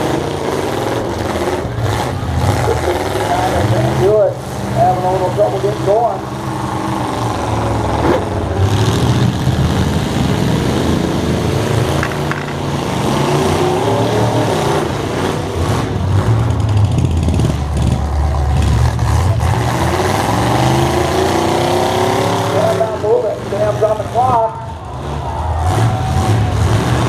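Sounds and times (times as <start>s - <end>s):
truck engines revving: 0.0s - 27.0s.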